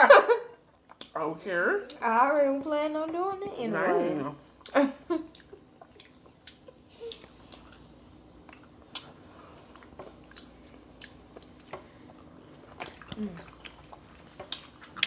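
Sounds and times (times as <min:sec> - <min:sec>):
mouth clicks and smacks: 0:04.6 - 0:07.8
person chewing: 0:04.6 - 0:15.0.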